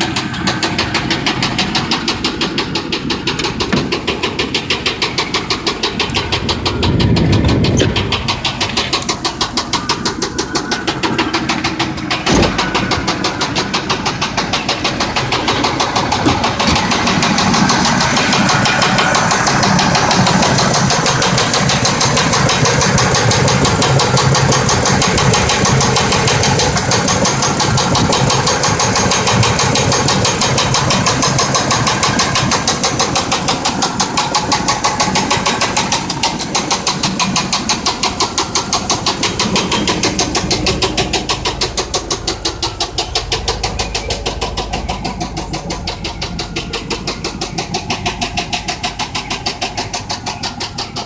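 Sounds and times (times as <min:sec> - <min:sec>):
engine rod knock: 0:00.0 - 0:51.0.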